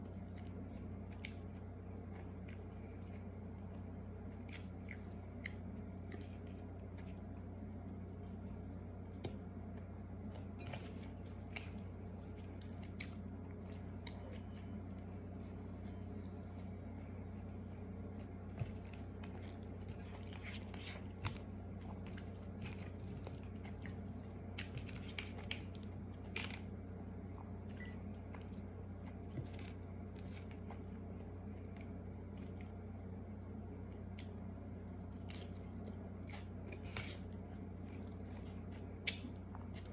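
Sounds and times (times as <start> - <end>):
chewing and crunching food: 0.0 - 39.9
steady low hum: 0.0 - 39.9.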